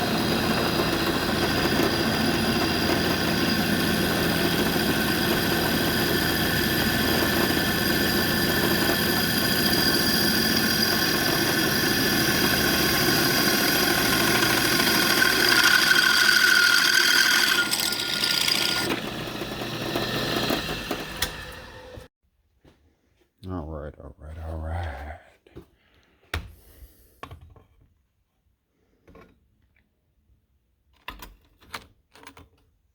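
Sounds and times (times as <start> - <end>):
motor running with a whine: 0.0 - 22.1.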